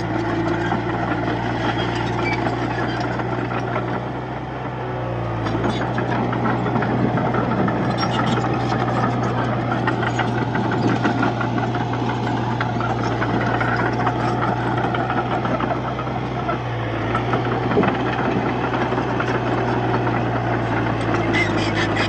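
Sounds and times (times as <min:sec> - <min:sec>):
bulldozer diesel engine: 0:00.0 - 0:22.0
dense rattle: 0:05.5 - 0:22.0.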